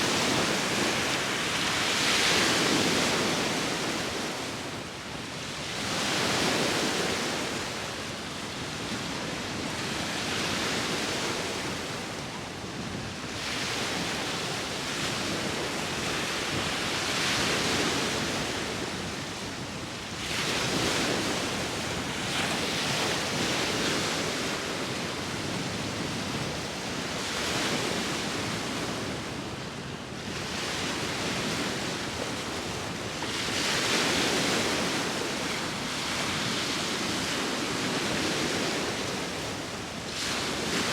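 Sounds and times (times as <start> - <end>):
wind: 0.0 - 40.9
sea waves breaking: 15.2 - 29.4.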